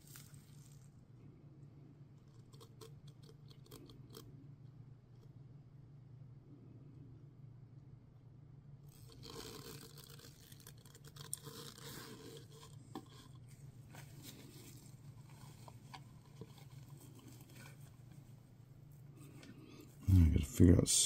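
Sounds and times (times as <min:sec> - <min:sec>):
steady low hum: 0:00.0 - 0:21.0
objects scraping and rustling: 0:09.0 - 0:20.1.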